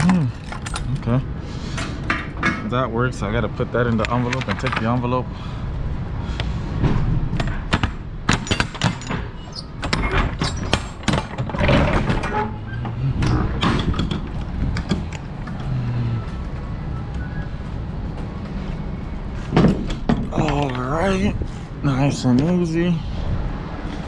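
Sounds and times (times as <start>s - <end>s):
objects clicking and rattling: 0.0s - 1.2s
low steady rumble: 11.6s - 24.0s.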